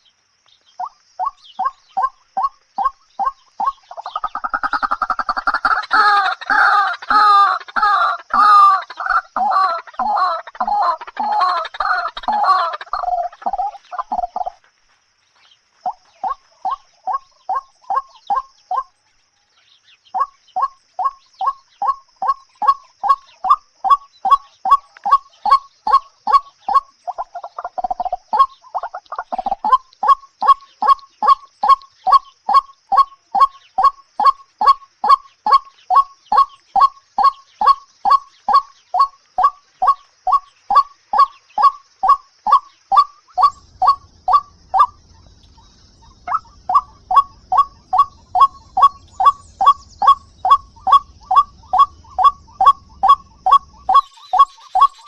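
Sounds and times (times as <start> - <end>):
faint high-pitched hiss: 0.0 - 55.0
bird calling short notes: 37.2 - 55.0.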